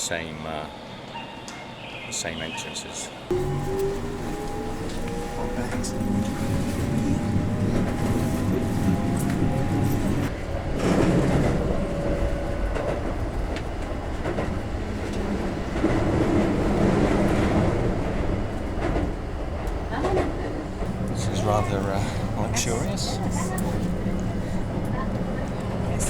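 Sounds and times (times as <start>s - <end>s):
electric train on rails: 2.9s - 26.0s
motor whine rising in pitch: 3.3s - 10.3s.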